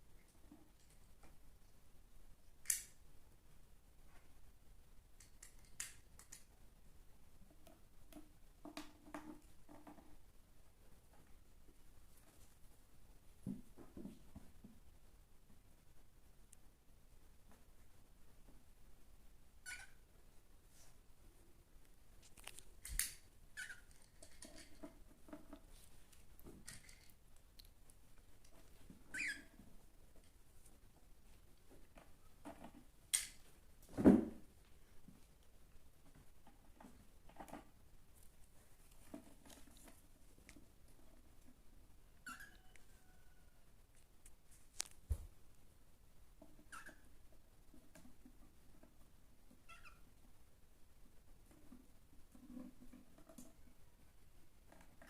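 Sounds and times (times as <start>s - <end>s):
cockatiels chirping: 19.6s - 20.0s, 42.2s - 42.7s, 49.7s - 50.0s.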